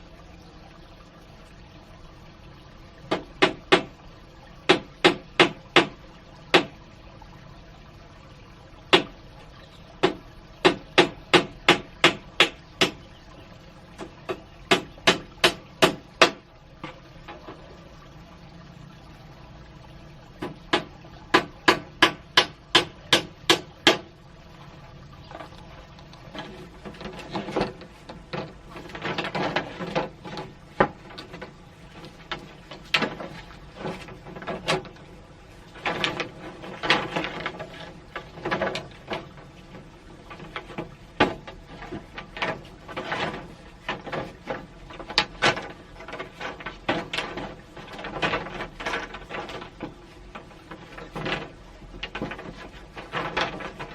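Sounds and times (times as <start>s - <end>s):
sharp knocks: 3.1s - 3.9s, 4.7s - 6.8s, 8.9s - 9.2s, 10.0s - 13.1s, 14.0s - 17.5s, 20.4s - 24.1s
rustling: 25.3s - 53.9s.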